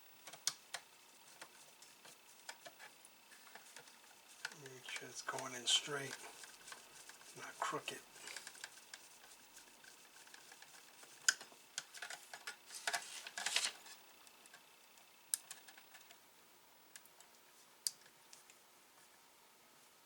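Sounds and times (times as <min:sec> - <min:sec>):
small parts clicking and tapping: 0:00.2 - 0:07.5, 0:08.2 - 0:14.7, 0:15.3 - 0:16.2.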